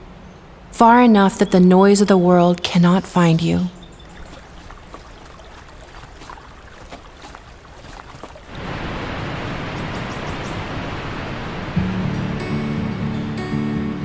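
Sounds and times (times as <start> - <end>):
ocean surf rushing: 8.4 - 14.0
music: 11.8 - 14.0.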